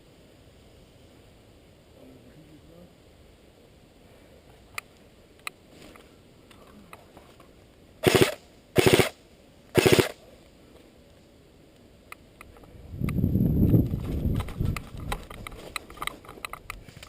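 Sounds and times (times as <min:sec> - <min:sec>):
airsoft gun full-auto bursts: 0:08.0 - 0:10.2.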